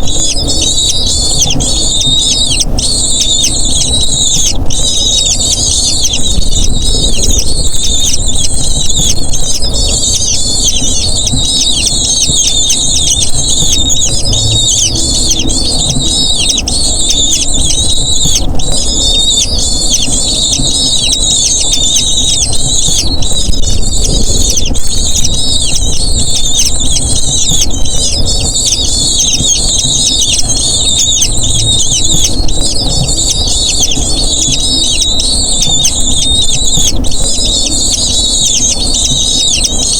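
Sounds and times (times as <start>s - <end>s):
eagle chicks begging calls: 0.0s - 39.9s.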